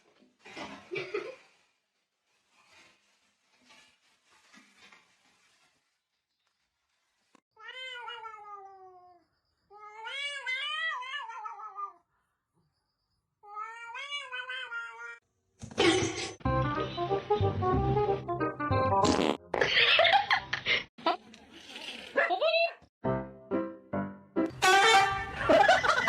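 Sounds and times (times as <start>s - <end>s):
cat meowing: 7.6s - 12.0s, 13.4s - 15.2s
music: 16.4s - 19.5s, 23.0s - 26.0s.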